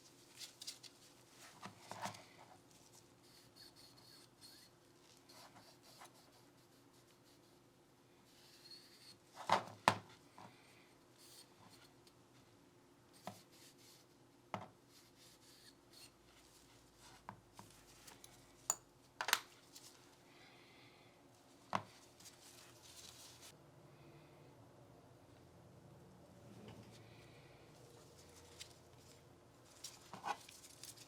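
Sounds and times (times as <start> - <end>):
pistol parts clicking and knocking: 18.7 - 19.5
soft rubbing: 21.3 - 23.6.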